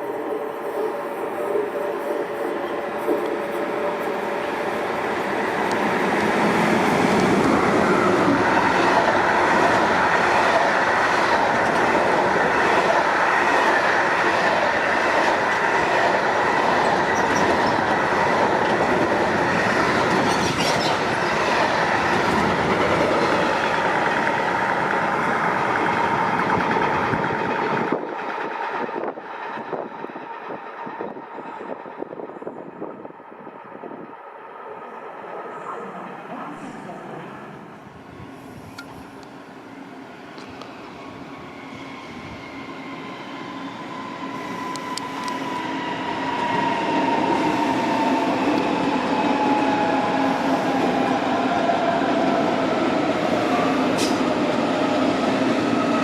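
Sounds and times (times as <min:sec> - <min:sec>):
train passing on track: 0:00.0 - 0:56.0
train wheels rolling and clicking: 0:01.5 - 0:32.3, 0:40.2 - 0:56.0.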